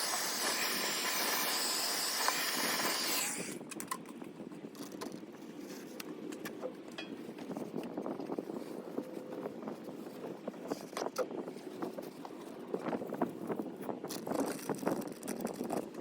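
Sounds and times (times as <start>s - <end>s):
hissing spray: 0.0s - 3.4s.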